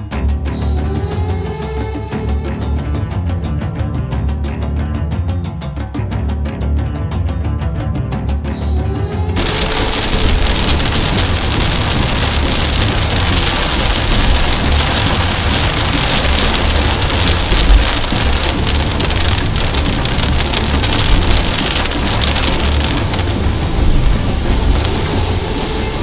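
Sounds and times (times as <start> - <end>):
car road rumble: 9.4 - 26.0
heavy rain on car: 9.4 - 26.0.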